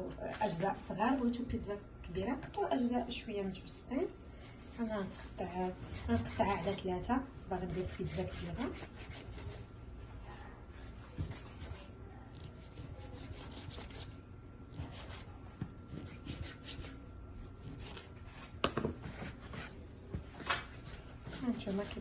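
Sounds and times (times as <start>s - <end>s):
hands rubbing and scraping dough: 4.4s - 9.7s, 10.7s - 19.8s, 20.4s - 22.0s.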